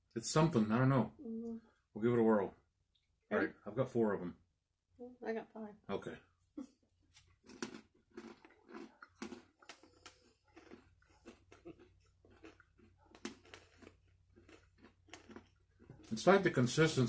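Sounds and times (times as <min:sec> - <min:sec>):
people chewing crunchy peanuts: 0:07.0 - 0:17.0.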